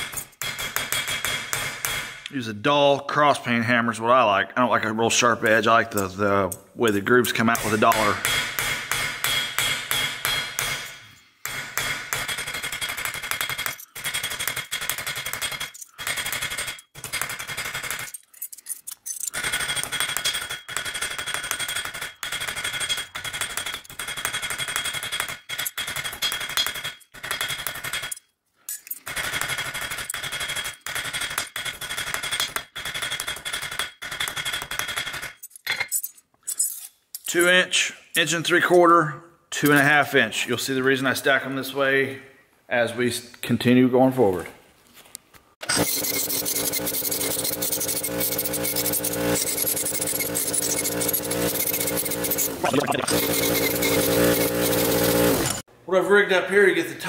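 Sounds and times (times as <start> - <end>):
hammer striking copper: 0.0 - 2.3, 6.9 - 16.7.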